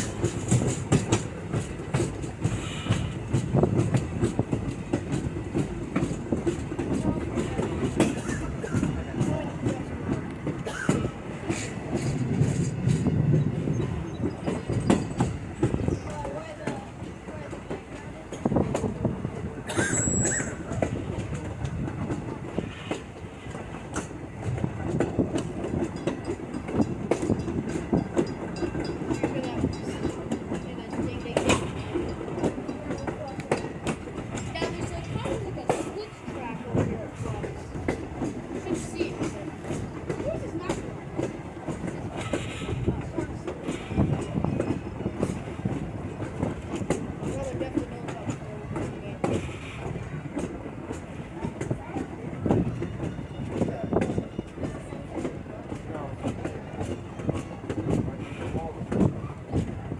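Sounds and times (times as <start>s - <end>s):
railroad car rattling: 0.0s - 59.9s
train wheels rumbling on track: 0.0s - 59.9s
wheels clicking over rail joints: 0.0s - 59.9s
brief high squeak: 19.9s - 20.6s.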